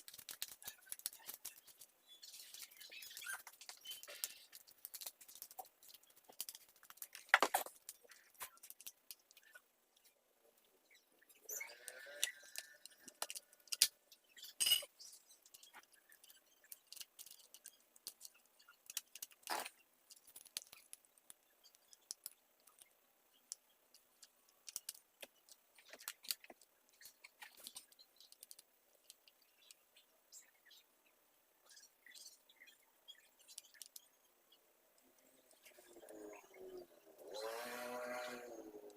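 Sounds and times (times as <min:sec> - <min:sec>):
small clicks and clinks of parts: 0:11.6 - 0:29.8.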